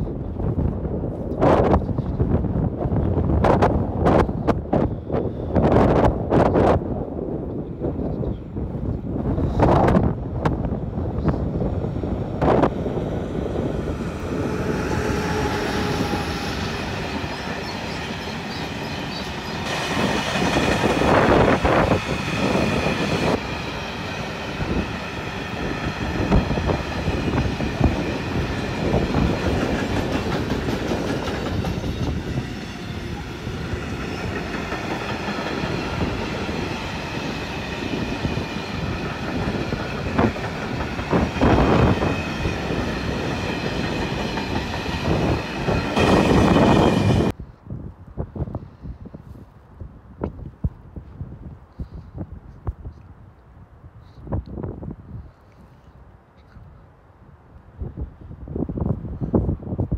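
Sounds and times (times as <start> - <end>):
train rolling rumble: 0.0 - 47.4.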